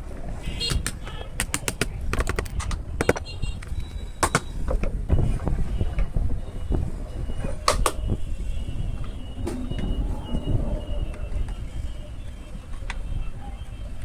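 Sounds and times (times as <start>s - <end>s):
sharp clicks and knocks: 0.7s - 5.0s.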